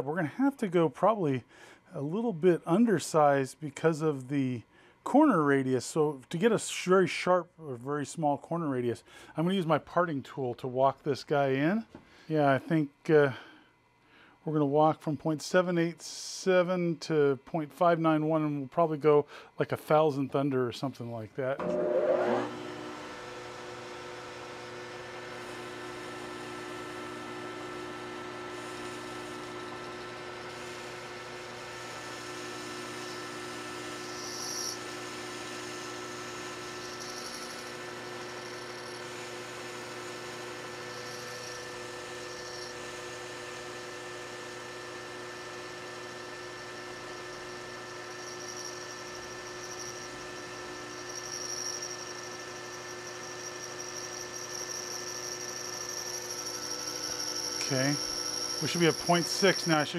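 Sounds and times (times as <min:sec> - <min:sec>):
lathe motor humming: 0:21.6 - 0:59.9
high-pitched cutting whine: 0:33.0 - 0:43.4, 0:46.4 - 0:59.9.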